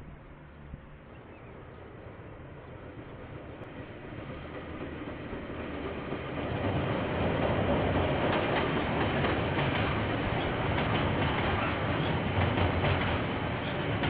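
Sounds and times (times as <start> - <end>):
train rumble: 0.0 - 14.0
wheels clicking over rail joints: 3.1 - 14.0.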